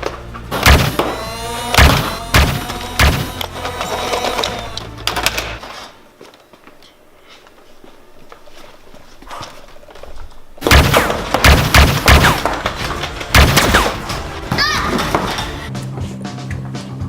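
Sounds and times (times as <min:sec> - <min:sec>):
gunfire-like shots with thumps: 0:00.5 - 0:03.4, 0:10.6 - 0:14.4.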